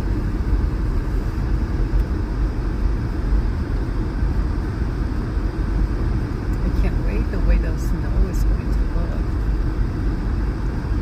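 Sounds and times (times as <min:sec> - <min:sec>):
car engine and tyre noise: 0:00.0 - 0:11.0.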